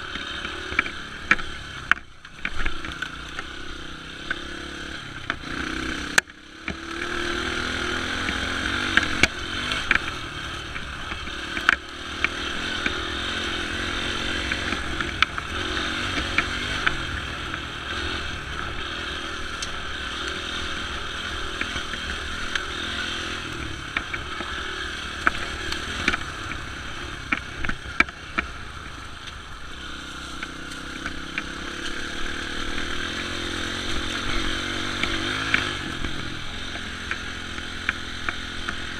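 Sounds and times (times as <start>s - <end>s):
dirt bike engine running: 0.0s - 38.9s.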